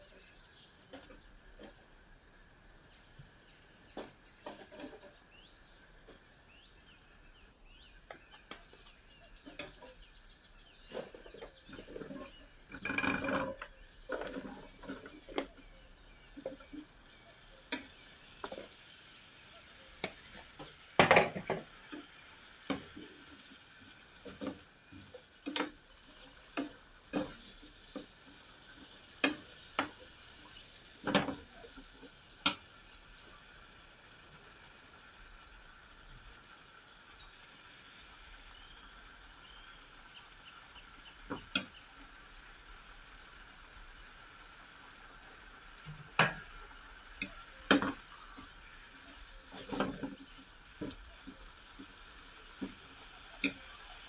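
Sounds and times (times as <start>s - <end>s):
utensils and dishes clinking: 31.0s - 31.7s.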